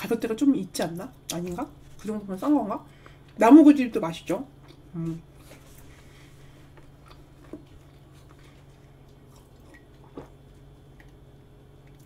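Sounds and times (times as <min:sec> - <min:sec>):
faint low hum: 0:00.0 - 0:12.0
mouth chewing soft cake: 0:04.6 - 0:12.0.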